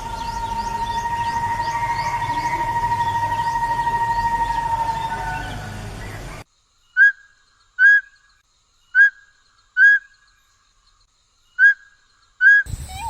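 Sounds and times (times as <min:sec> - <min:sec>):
bird whistling call: 0:00.0 - 0:06.4, 0:11.5 - 0:13.0
two-tone hum: 0:00.0 - 0:06.4.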